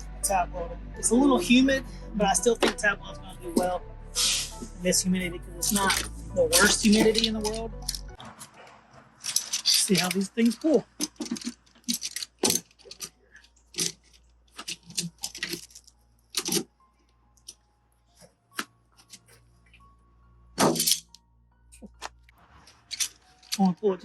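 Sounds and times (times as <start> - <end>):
pulling tool clicks and cracks on metal: 9.2 - 16.6, 20.6 - 21.2.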